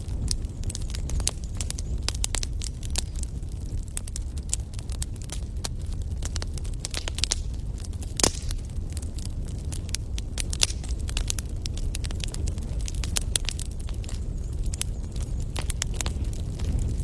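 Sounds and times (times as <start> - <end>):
steady low rumble: 0.0 - 17.0
wood fire crackling and popping: 0.0 - 17.0.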